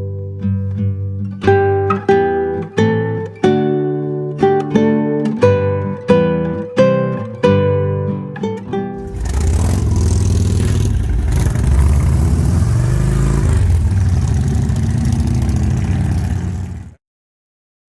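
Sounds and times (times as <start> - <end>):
motorcycle engine running: 9.0 - 17.0.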